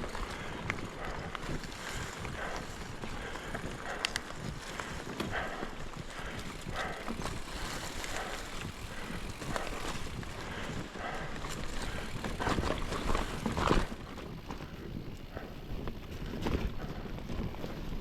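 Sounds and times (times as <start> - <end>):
bike rattling over roots: 0.0 - 18.0
bike tyres crunching on dirt: 0.0 - 18.0
bike jolt: 1.6 - 14.9.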